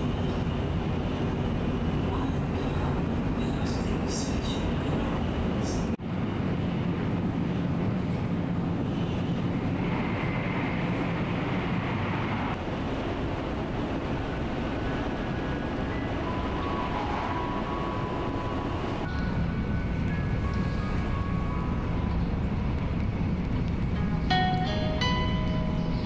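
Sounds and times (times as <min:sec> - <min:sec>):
train running noise from inside: 0:00.0 - 0:26.0.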